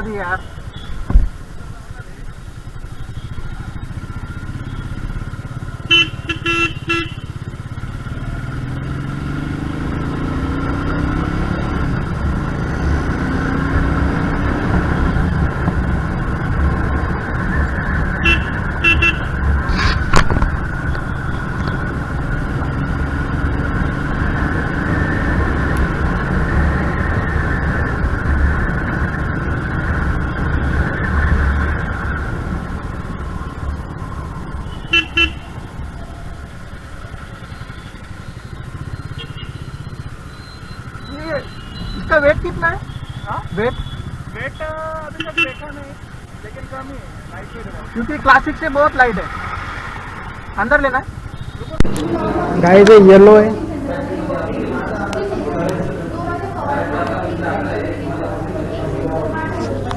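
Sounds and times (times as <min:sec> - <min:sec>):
motorcycle engine accelerating: 0:00.0 - 0:59.9
horn beeping: 0:02.9 - 0:07.8, 0:09.9 - 0:29.4, 0:34.0 - 0:35.9, 0:37.3 - 0:46.4, 0:50.6 - 0:59.9
wind rumble: 0:18.8 - 0:22.8.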